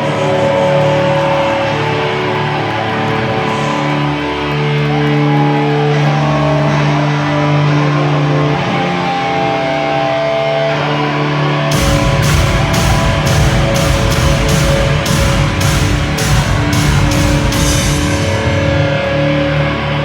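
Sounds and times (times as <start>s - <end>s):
electric guitar chords: 0.0s - 20.0s
rock band playing: 11.7s - 19.7s.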